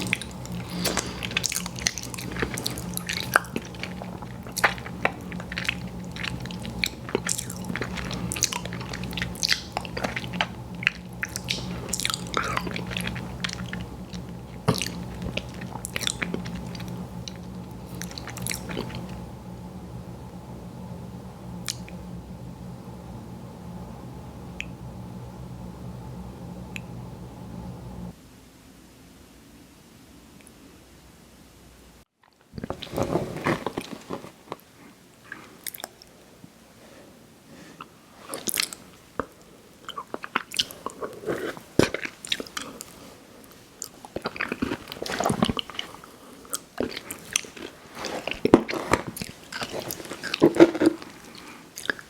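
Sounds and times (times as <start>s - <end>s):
crunchy bite: 0.0s - 19.1s
crisp crackling chewing: 0.0s - 19.3s, 32.2s - 36.1s, 38.2s - 52.0s.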